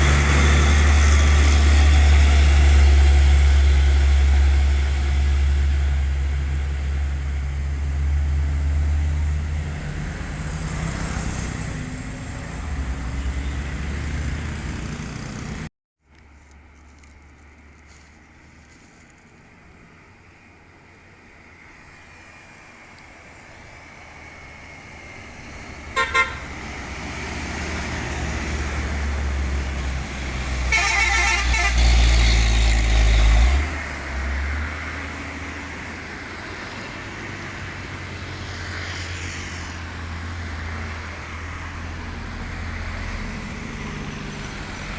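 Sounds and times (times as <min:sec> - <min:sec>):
diesel truck engine rumble: 0:00.0 - 0:44.9
truck musical horn toots: 0:25.9 - 0:26.5, 0:30.7 - 0:32.1.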